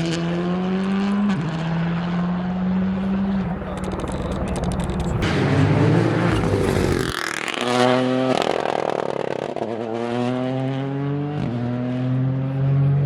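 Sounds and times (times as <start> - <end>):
rally car engine accelerating: 0.0 - 13.0
gear change: 2.4 - 8.0.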